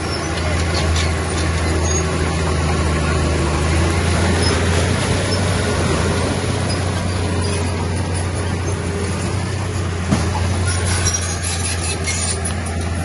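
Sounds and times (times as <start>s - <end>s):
diesel engine droning: 0.0s - 13.0s
faint high squeaks: 10.4s - 12.9s.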